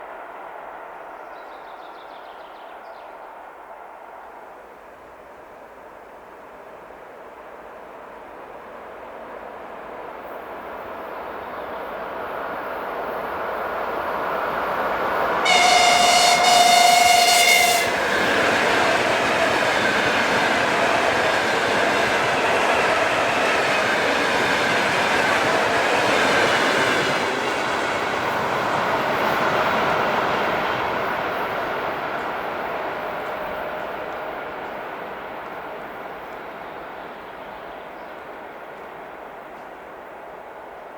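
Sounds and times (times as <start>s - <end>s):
train passing: 0.0s - 40.9s
two-tone train horn: 15.4s - 19.7s.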